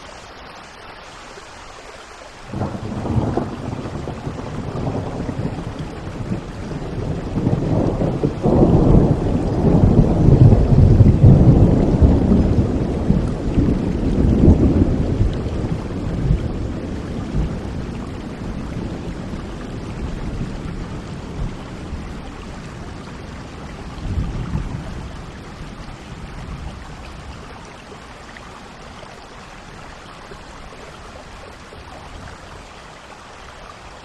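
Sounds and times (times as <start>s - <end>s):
steady rainfall: 0.0s - 34.0s
deep thunder roll: 2.5s - 22.1s.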